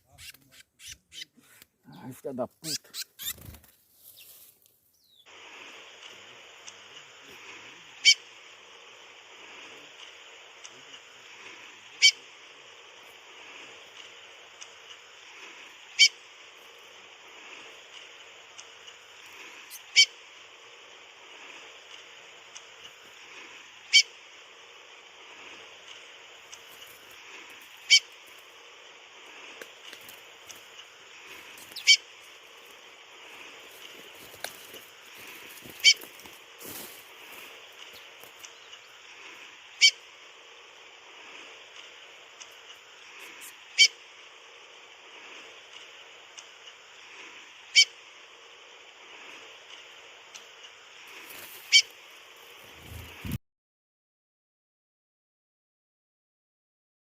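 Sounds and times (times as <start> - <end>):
steady high hiss: 0.0 - 53.4
faint ticks: 5.9 - 7.4, 13.7 - 15.1, 17.6 - 19.8, 21.8 - 23.2, 25.6 - 28.5, 29.5 - 31.8, 37.2 - 39.0, 41.7 - 42.8, 45.6 - 46.8, 49.6 - 51.7.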